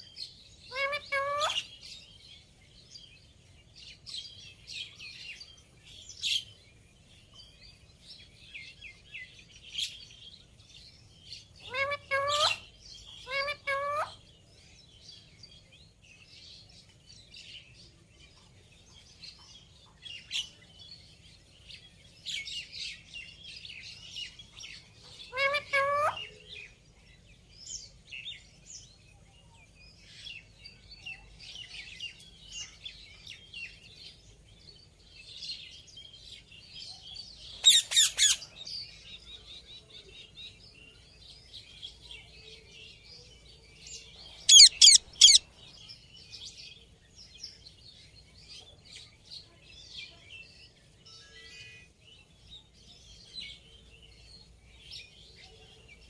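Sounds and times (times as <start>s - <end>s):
parrot chattering: 0.7s - 1.6s, 13.3s - 14.1s, 25.3s - 26.2s, 44.5s - 45.4s
parrot squawks: 0.7s - 1.7s, 11.7s - 12.6s, 25.3s - 26.2s, 44.5s - 45.4s.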